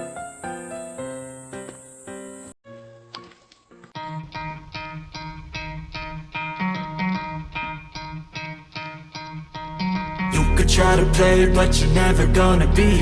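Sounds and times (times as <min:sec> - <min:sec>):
plucked guitar riff: 0:03.8 - 0:13.0
steady low pulse: 0:10.2 - 0:13.0.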